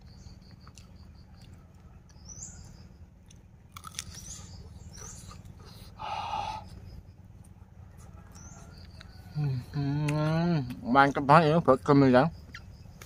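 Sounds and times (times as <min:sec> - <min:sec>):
birds chirping: 0:00.0 - 0:13.0
person chewing crispy food: 0:00.4 - 0:02.3, 0:03.2 - 0:06.0.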